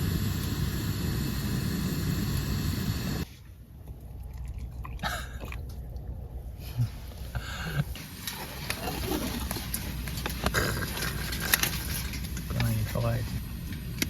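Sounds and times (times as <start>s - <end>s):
chewing sounds of eating: 4.0s - 6.1s.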